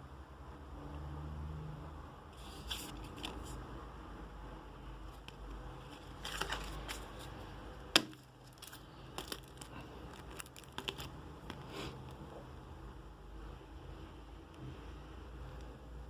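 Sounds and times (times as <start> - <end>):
cards and packaging rustling: 2.4 - 3.6, 5.1 - 12.2.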